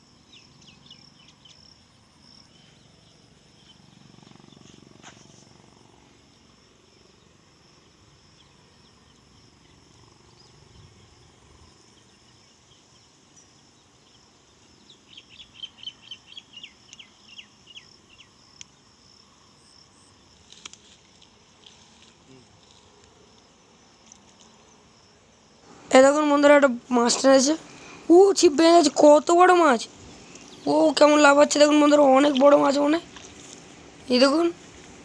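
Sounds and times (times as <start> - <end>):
faint steady hiss: 0.0 - 35.0
high insect whine: 0.0 - 35.0
bird chirping: 0.2 - 4.8, 11.9 - 18.8, 28.7 - 31.7
sharp crackle: 20.3 - 24.6.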